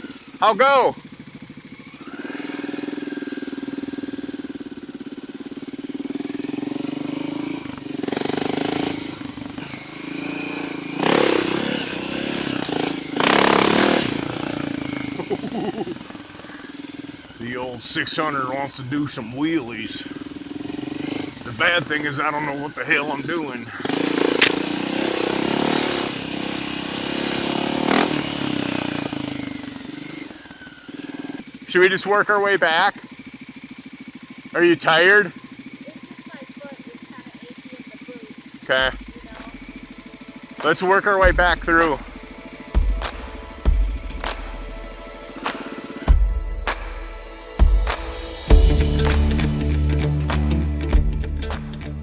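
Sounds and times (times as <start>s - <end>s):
dirt bike engine revving: 0.0s - 52.0s
sharp clacks: 24.3s - 24.6s, 39.3s - 39.8s, 43.0s - 44.8s, 45.4s - 45.8s.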